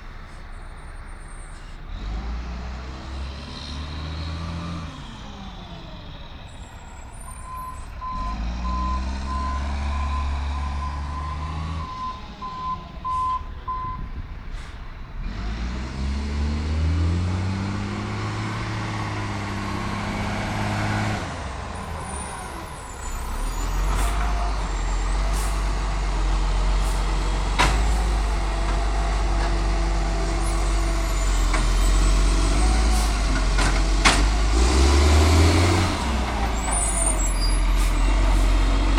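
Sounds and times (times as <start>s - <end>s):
diesel engine revving: 0.0s - 38.9s
reversing beeper: 7.2s - 14.1s, 29.9s - 33.4s.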